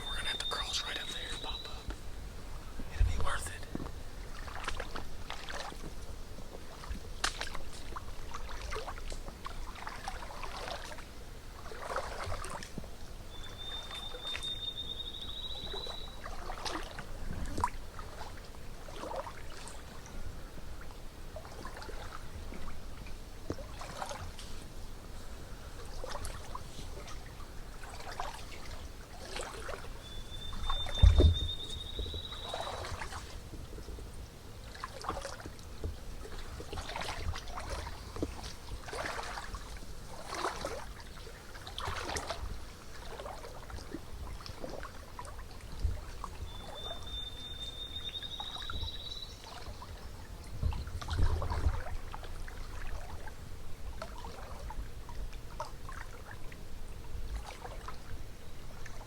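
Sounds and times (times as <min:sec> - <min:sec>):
songbird rising trill: 0:00.0 - 0:01.9, 0:13.4 - 0:16.2, 0:30.0 - 0:32.9.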